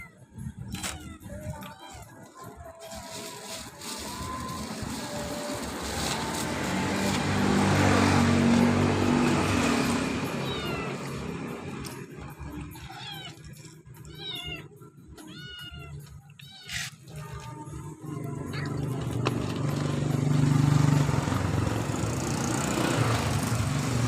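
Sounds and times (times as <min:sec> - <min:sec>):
kitten meowing: 0:10.4 - 0:11.1, 0:12.8 - 0:13.4, 0:14.0 - 0:16.9.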